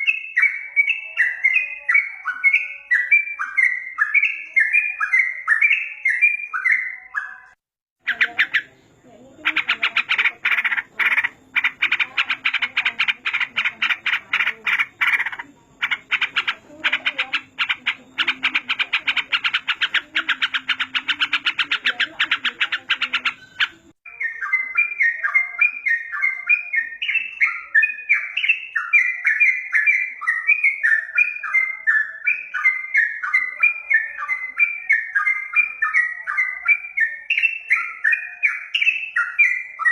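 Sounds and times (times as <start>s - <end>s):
rapid buzzing chatter: 8.0s - 24.0s.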